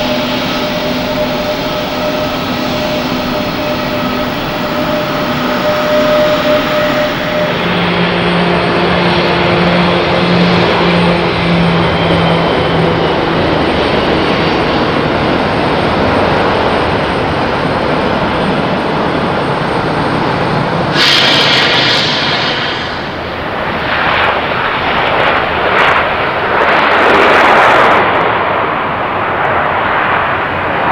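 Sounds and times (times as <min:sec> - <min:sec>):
faint steady tones: 0:00.0 - 0:20.9
jet engines roaring: 0:00.0 - 0:30.9.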